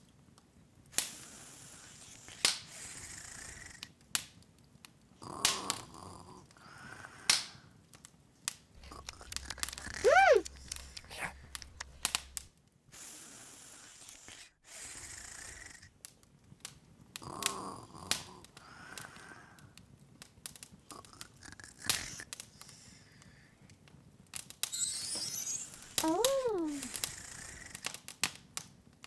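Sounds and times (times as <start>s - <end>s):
open fire crackling and popping: 0.0s - 12.6s, 16.0s - 29.0s
cartoon voice squeak: 8.8s - 12.0s, 24.7s - 27.1s.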